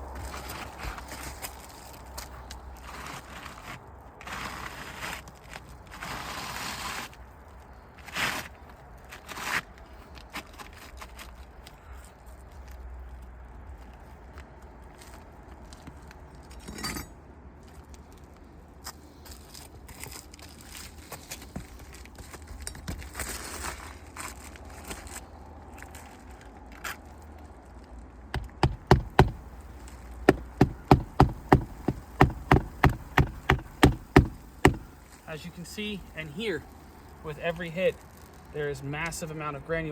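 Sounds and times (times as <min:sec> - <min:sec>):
low wind rumble: 0:00.0 - 0:04.9
hammer striking shingle roof: 0:28.3 - 0:29.6, 0:30.2 - 0:35.0.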